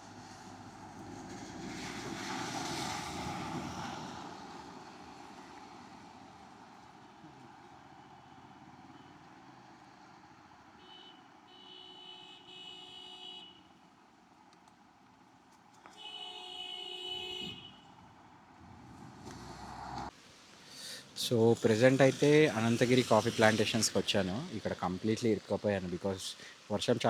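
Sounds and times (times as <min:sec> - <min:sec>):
vehicle passing by: 0:00.0 - 0:10.6, 0:18.4 - 0:20.1.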